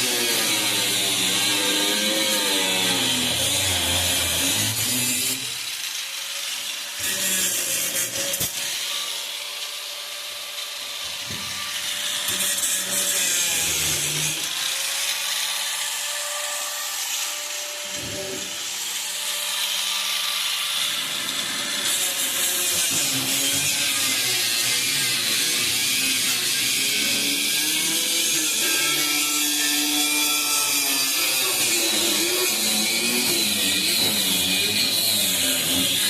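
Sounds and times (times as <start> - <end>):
power tool cutting sheet metal: 0.0 - 36.0.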